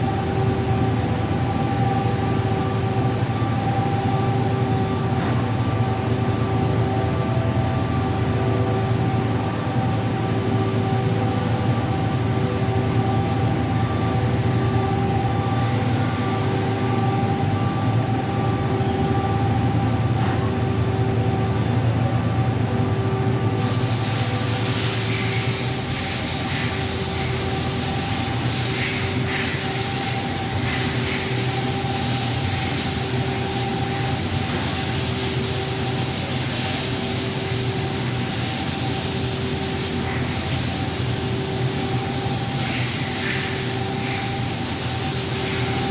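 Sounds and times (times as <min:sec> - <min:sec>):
machine humming with whine: 0:00.0 - 0:45.9
high hiss: 0:23.6 - 0:45.9.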